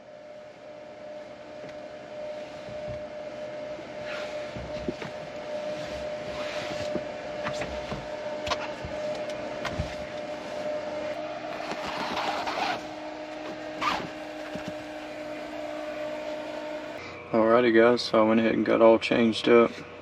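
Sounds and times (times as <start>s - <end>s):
small electric motor humming: 1.5s - 17.0s.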